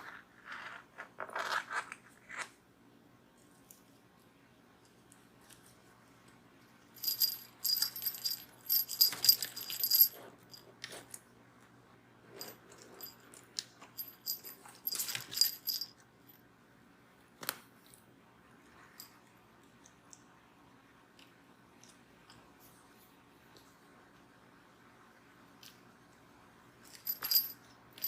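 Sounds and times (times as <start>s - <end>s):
cat toy bell jingling: 7.0s - 10.3s, 13.9s - 15.9s, 26.9s - 27.6s.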